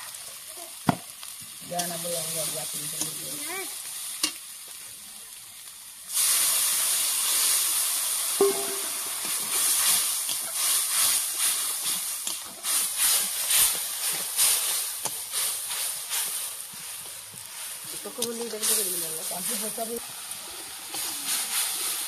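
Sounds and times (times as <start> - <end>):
hot oil sizzling: 0.0 - 22.0
ladle stirring in pan: 6.1 - 22.0.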